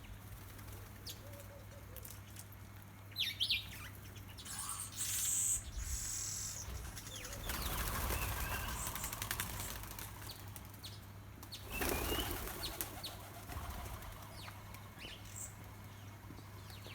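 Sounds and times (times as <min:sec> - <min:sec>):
small bird wings fluttering: 0:06.8 - 0:14.9.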